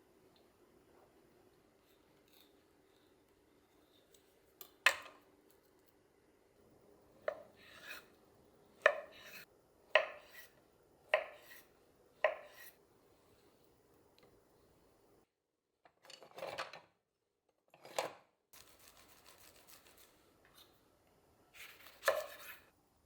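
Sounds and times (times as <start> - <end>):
knife scrape: 7.3 - 8.2, 8.8 - 12.8, 18.6 - 20.8, 21.6 - 22.8.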